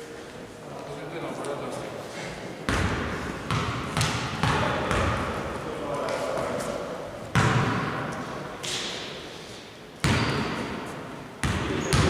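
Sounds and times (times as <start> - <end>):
basketball bouncing on gym floor: 2.7 - 5.2, 11.4 - 12.0.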